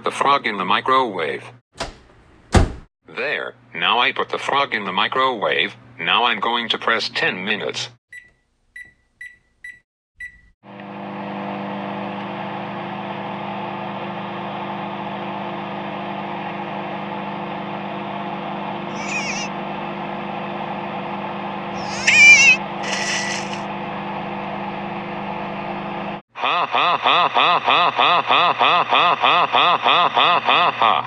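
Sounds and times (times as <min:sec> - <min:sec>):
microwave oven humming: 0:01.8 - 0:02.8, 0:10.2 - 0:18.9, 0:19.5 - 0:26.2
microwave keypad beeping: 0:08.1 - 0:10.5
high warbling cry: 0:18.9 - 0:19.5, 0:21.8 - 0:23.6.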